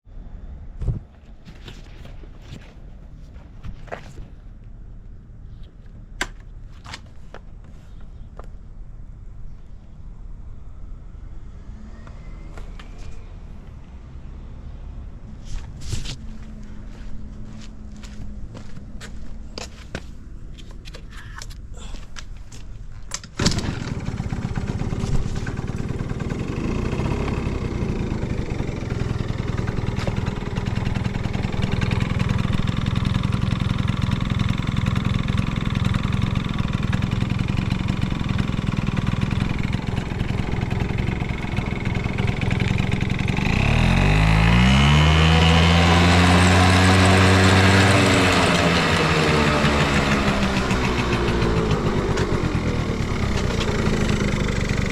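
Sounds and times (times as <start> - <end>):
scooter engine idling and revving: 23.4 - 54.9.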